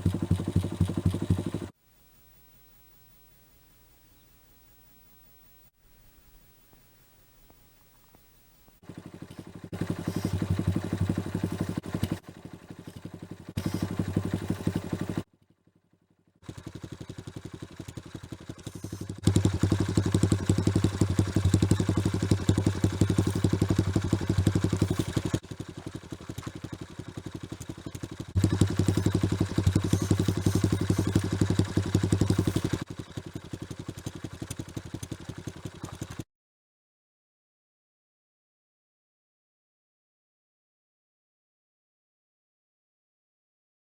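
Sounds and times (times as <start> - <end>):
motorcycle engine thudding exhaust: 0.0 - 1.8, 6.1 - 15.3, 16.4 - 36.2.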